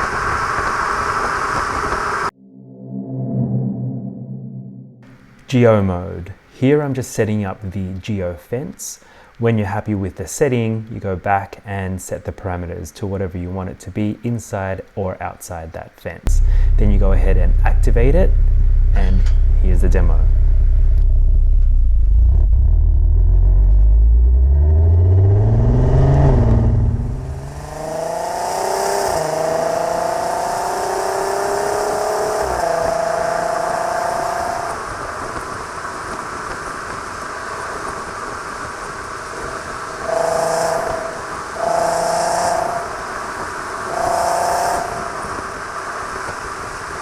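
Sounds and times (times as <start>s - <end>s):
deep exhaust note: 16.3s - 34.7s, 39.8s - 45.3s
car engine accelerating: 16.3s - 35.7s, 39.0s - 46.5s
gear changes: 16.3s - 47.0s.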